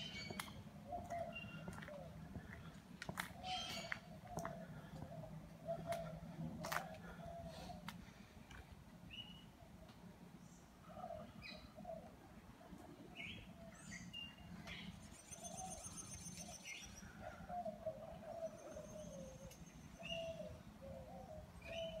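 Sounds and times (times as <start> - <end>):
high trilling bird calls: 13.8 - 17.0.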